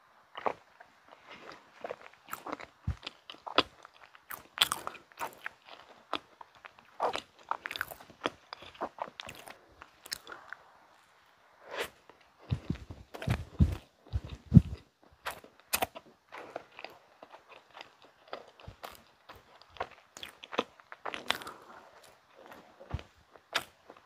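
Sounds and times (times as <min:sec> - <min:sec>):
deep thuds: 0:12.5 - 0:14.8.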